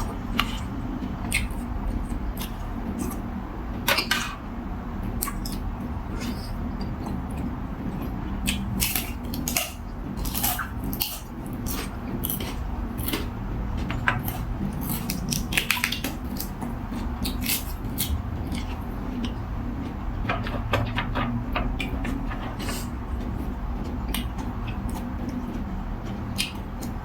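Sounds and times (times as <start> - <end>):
low background hum: 0.0 - 27.0
crisp chewing crunches: 8.5 - 13.3, 14.2 - 19.3.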